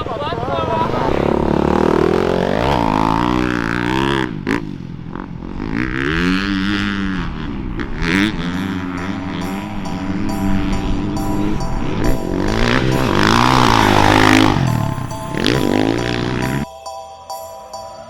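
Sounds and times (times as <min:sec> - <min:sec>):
dirt bike engine revving: 0:00.0 - 0:16.7.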